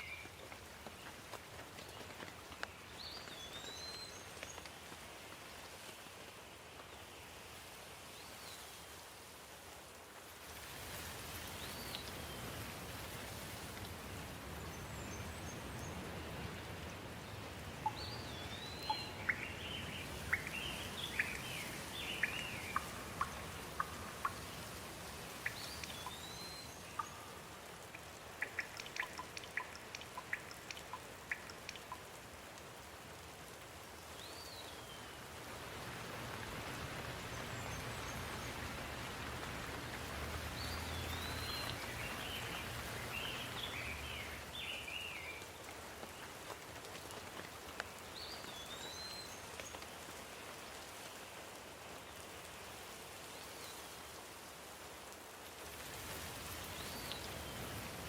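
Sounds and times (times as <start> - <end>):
rain falling: 0.0 - 58.0
quick chirps and sharp ticks: 17.8 - 24.7, 25.3 - 32.1.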